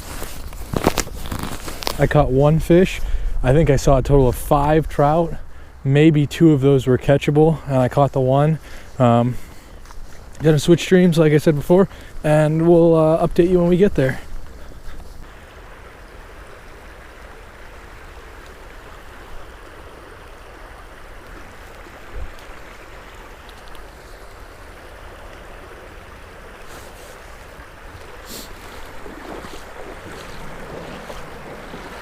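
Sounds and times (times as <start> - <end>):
stream water rushing over rapids: 6.5 - 32.0
wind rumble on microphone: 28.6 - 32.0.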